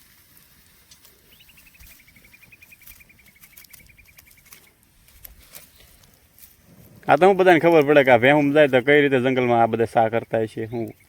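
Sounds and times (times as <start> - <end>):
faint scattered clicks: 0.3 - 8.1
bird rapid trill: 1.3 - 4.7.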